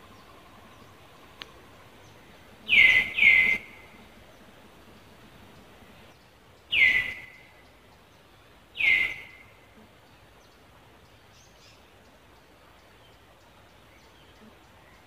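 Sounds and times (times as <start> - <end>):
bird calling: 0.0 - 6.1, 6.7 - 7.5, 8.8 - 10.0
faint background noise: 0.0 - 15.0.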